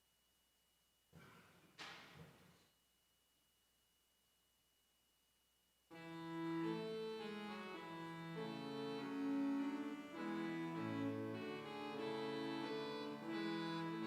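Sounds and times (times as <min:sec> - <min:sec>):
organ playing slow chords: 0:05.9 - 0:14.0.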